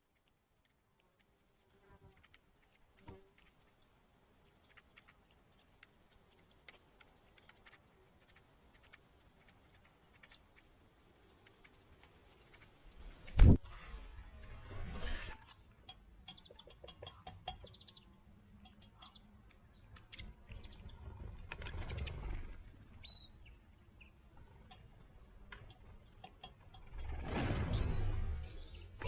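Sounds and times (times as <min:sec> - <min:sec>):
birds chirping: 0:15.5 - 0:29.0.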